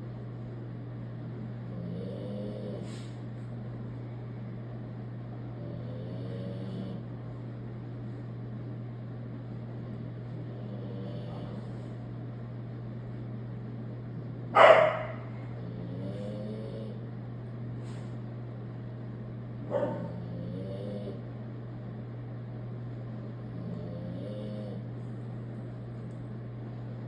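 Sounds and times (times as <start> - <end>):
steady hum: 0.0 - 27.0
dog snoring: 1.5 - 3.2, 5.5 - 7.1, 10.0 - 11.8, 14.6 - 17.1, 19.7 - 21.3, 23.4 - 24.9.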